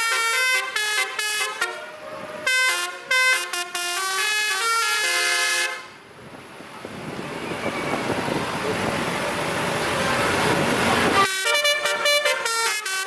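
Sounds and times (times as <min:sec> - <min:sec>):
musical truck air horn playing a tune: 0:00.0 - 0:06.0, 0:11.1 - 0:13.0.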